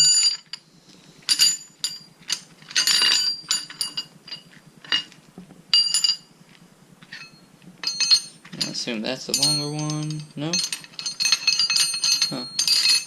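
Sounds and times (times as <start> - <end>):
metal fasteners clinking: 0.0 - 6.3, 7.0 - 13.0.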